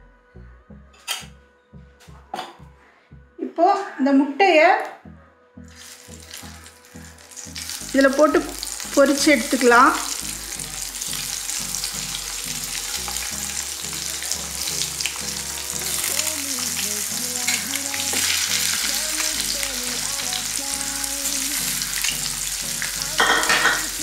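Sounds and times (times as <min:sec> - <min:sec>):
eggs sizzling in hot oil: 0:05.7 - 0:24.0.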